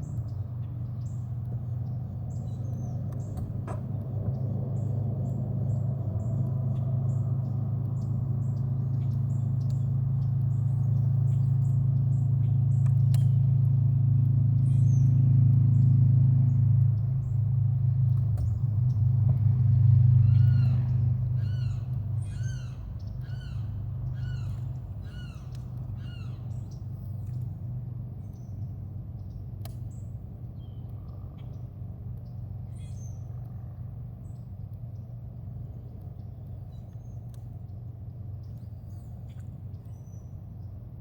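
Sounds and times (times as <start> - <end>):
low hum: 0.0 - 41.0
bird call: 20.2 - 26.9.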